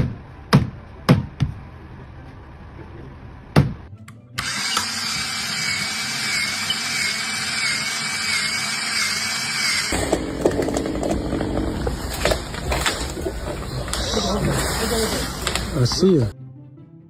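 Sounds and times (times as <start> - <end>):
power tool high whine: 4.4 - 10.0.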